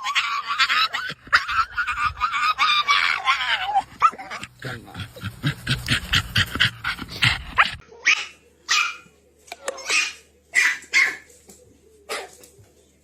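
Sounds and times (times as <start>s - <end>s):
dog barking: 9.9s - 11.3s.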